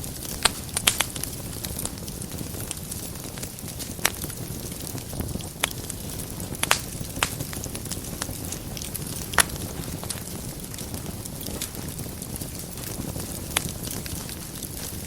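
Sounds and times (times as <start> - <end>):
fireplace fire crackling: 0.0 - 15.0.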